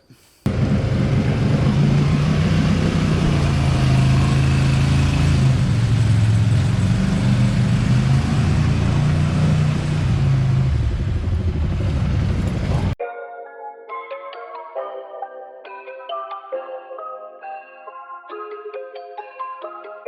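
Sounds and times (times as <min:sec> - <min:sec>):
atv engine running: 0:00.5 - 0:13.0.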